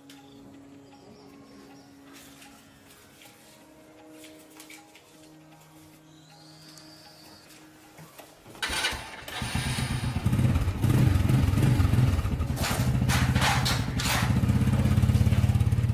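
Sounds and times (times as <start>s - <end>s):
motorbike engine starting and revving: 8.6s - 15.9s.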